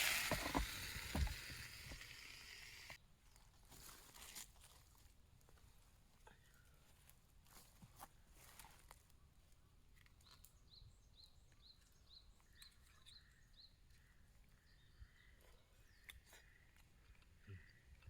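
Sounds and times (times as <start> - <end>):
faint bird calls: 12.6 - 18.0.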